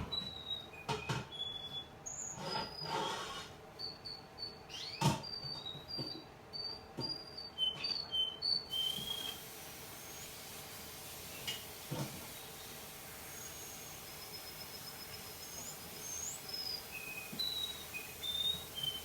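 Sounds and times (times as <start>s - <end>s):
steady hiss: 8.7s - 19.0s
canary singing: 13.3s - 19.0s.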